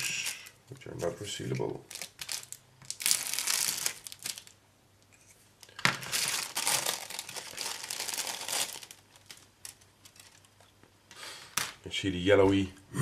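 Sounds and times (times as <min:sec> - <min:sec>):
plastic bag crinkling: 0:01.7 - 0:04.6, 0:05.6 - 0:10.5.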